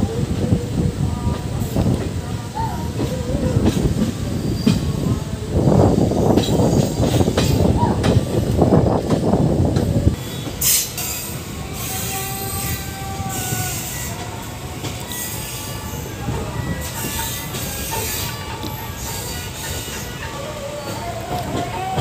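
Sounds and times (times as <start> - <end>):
train hiss: 0.0 - 22.0
train rumbling and clattering on track: 0.0 - 22.0
high wheel squeal: 10.2 - 22.0.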